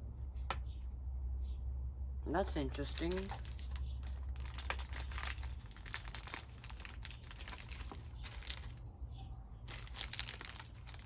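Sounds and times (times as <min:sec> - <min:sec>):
plastic bag crinkling: 0:02.6 - 0:08.9, 0:09.6 - 0:11.0.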